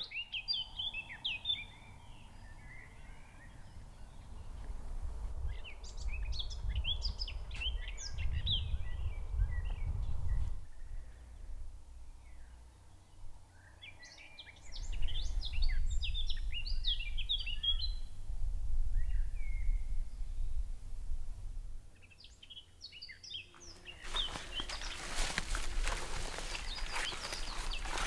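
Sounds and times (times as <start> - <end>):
songbird twittering: 0.0 - 4.7, 5.4 - 11.2, 12.2 - 18.2, 22.0 - 28.0.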